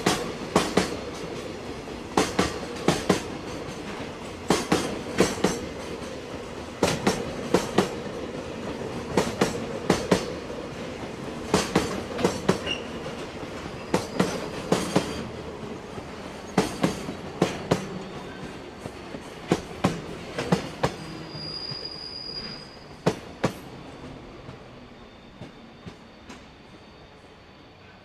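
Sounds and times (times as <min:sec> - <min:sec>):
train wheels clacking over rail joints: 0:00.0 - 0:10.5, 0:11.4 - 0:15.4, 0:16.4 - 0:21.3
high wheel squeal: 0:12.6 - 0:13.0, 0:13.7 - 0:15.2, 0:20.9 - 0:23.0, 0:24.8 - 0:27.3.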